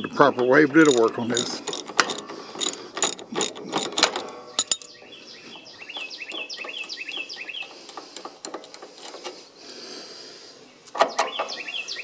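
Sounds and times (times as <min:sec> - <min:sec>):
bird chirping: 0:00.0 - 0:08.4, 0:10.5 - 0:12.0
ratchet wrench clicking: 0:00.8 - 0:04.9.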